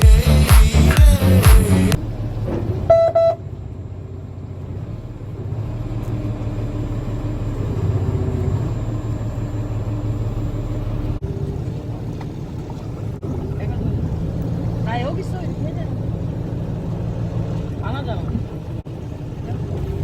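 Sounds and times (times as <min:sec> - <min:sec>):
boat engine droning: 0:00.0 - 0:20.0
short beep: 0:02.9 - 0:03.4.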